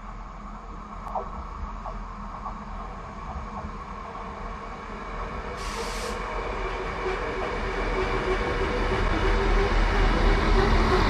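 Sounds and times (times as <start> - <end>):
diesel railcar engine: 0.0 - 11.0
burst of hiss: 5.6 - 6.3.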